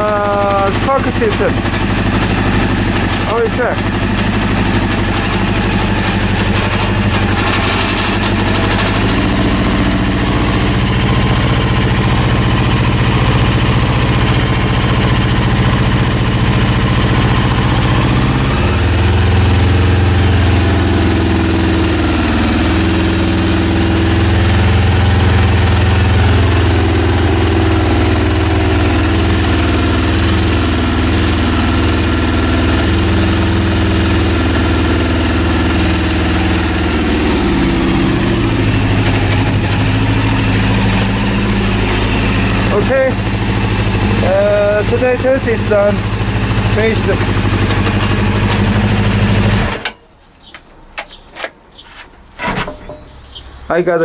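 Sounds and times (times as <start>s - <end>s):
motorcycle engine idling unevenly: 0.0s - 50.6s.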